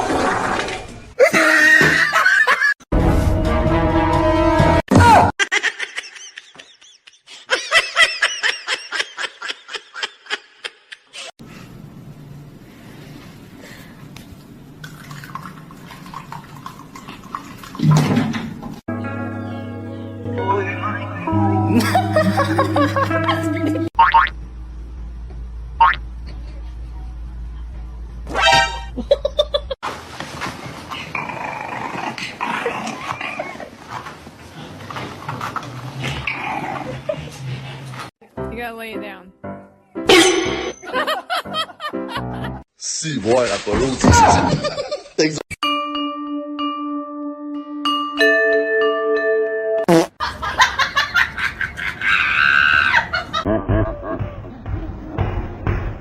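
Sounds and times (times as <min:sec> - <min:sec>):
person laughing hard: 0:05.4 - 0:11.2, 0:21.7 - 0:23.9, 0:29.0 - 0:29.8, 0:40.8 - 0:42.6, 0:50.2 - 0:54.5
dog growling and whining: 0:31.1 - 0:34.1, 0:35.0 - 0:37.9.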